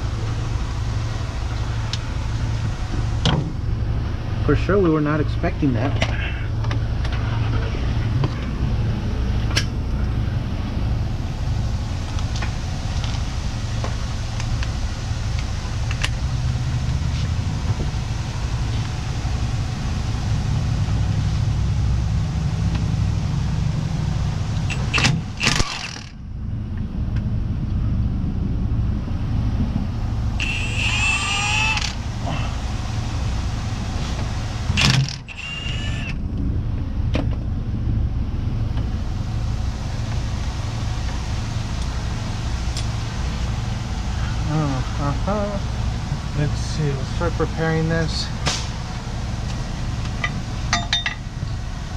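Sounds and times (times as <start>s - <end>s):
truck engine idling: 0.0s - 51.9s
short wavering squeal: 30.4s - 32.6s, 35.2s - 36.2s.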